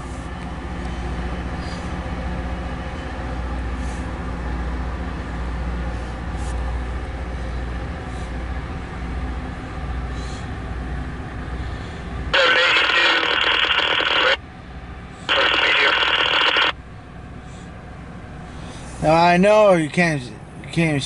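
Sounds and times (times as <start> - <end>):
train low rumble: 0.0 - 21.0
scanner radio transmission: 12.3 - 14.5, 15.2 - 16.8.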